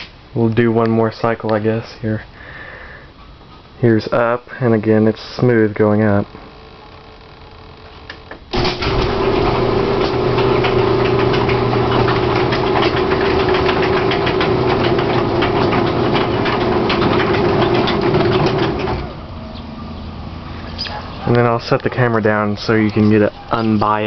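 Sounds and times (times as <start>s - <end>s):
garage door opener motor: 8.4s - 19.7s.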